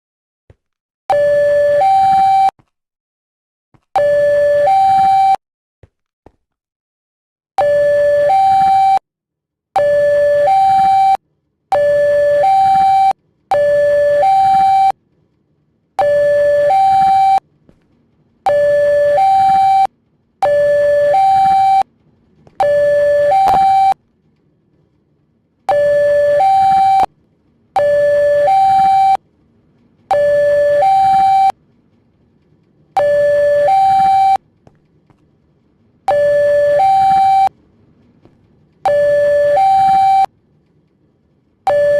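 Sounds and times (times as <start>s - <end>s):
two-tone level crossing alarm: 1.1s - 2.5s, 4.0s - 5.4s, 7.6s - 9.0s, 9.8s - 15.0s, 16.0s - 17.4s, 18.4s - 21.9s, 22.6s - 24.0s, 25.7s - 27.1s, 27.8s - 29.2s, 30.1s - 31.6s, 33.0s - 34.4s, 36.1s - 37.5s, 38.8s - 40.3s, 41.7s - 41.9s.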